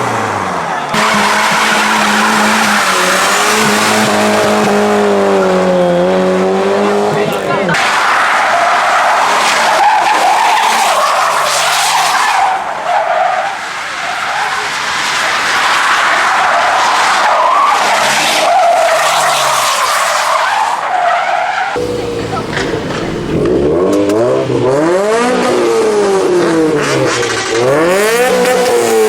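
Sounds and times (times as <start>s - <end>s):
tyres screeching: 16.1s - 24.8s
car engine revving faintly: 21.8s - 26.0s.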